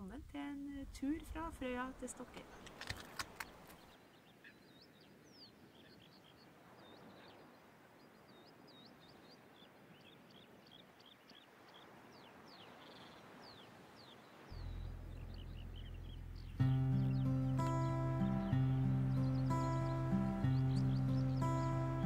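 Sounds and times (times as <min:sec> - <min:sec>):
sharp clicks: 0:02.6 - 0:03.8
faint bird chirps: 0:03.7 - 0:22.0.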